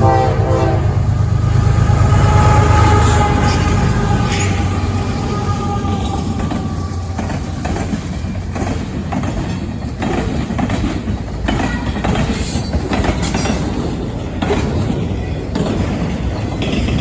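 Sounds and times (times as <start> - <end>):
freight train rumbling past: 0.0 - 17.0
train wheels clacking on rail joints: 0.5 - 17.0.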